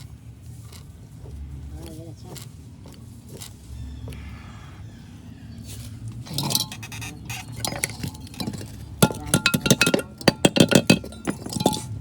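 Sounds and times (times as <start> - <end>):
metal parts clinking and knocking: 6.1 - 12.0.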